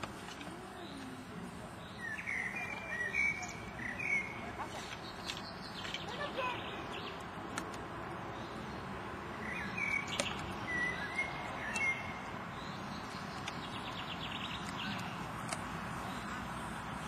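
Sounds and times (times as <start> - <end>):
outdoor background noise: 0.0 - 17.0
small birds chirping: 0.0 - 17.0
bird trill: 1.9 - 7.2, 9.4 - 15.2.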